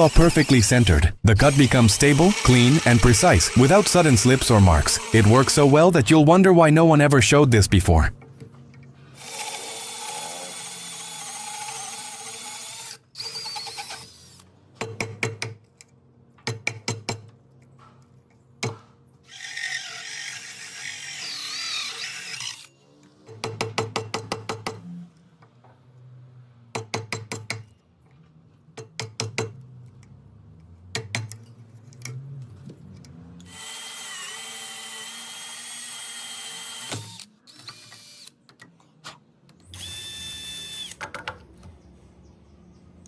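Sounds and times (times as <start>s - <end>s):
power drill with hole saw: 0.0s - 6.0s, 9.2s - 14.4s, 19.3s - 22.8s, 33.5s - 38.4s, 39.8s - 41.0s.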